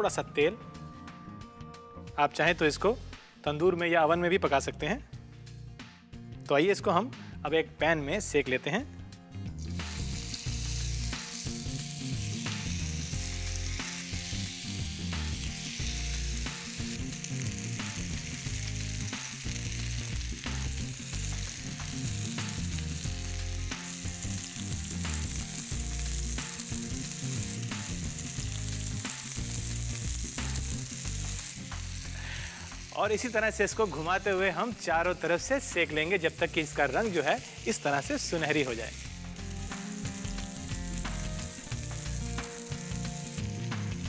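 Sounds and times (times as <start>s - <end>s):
skewers sizzling in a pan: 9.4s - 44.0s.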